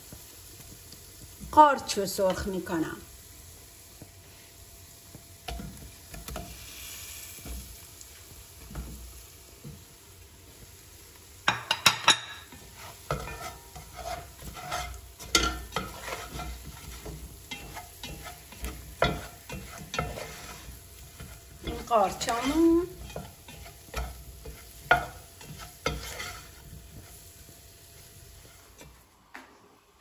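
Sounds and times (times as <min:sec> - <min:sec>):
mushrooms sizzling in oil: 0:00.0 - 0:29.2
spatula scraping a pan: 0:05.5 - 0:09.8, 0:11.5 - 0:29.0.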